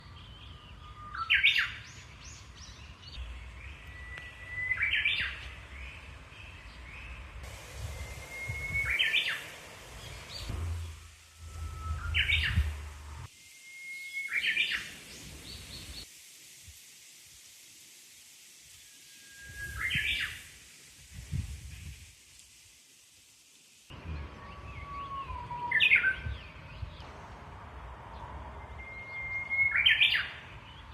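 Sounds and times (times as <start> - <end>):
bird singing whistled song: 0.1 - 7.2, 7.8 - 16.0, 18.8 - 20.5, 24.3 - 27.0, 28.6 - 30.9.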